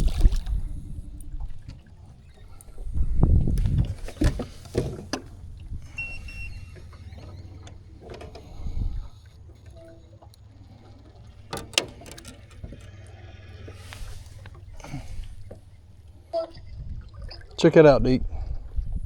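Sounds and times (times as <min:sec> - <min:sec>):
steady low rumble: 0:00.0 - 0:19.0
gear clicking and knocking: 0:11.2 - 0:13.1.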